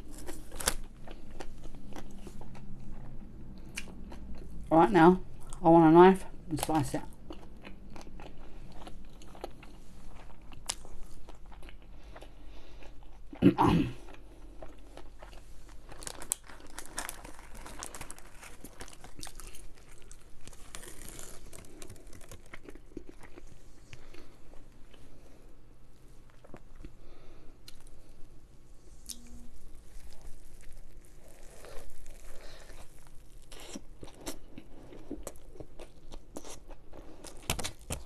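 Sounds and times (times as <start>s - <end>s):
food crunching: 0.0s - 4.6s, 6.5s - 25.5s, 29.0s - 38.0s
biting and chewing food: 0.0s - 4.7s, 6.6s - 25.4s, 29.7s - 38.0s.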